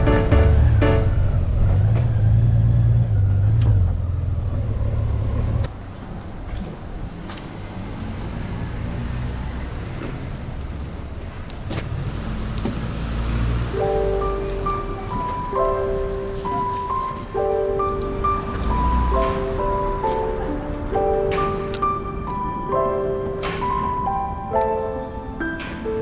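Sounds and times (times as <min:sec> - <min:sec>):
background music: 0:00.0 - 0:01.6, 0:13.6 - 0:26.0
road and wind noise: 0:00.0 - 0:26.0.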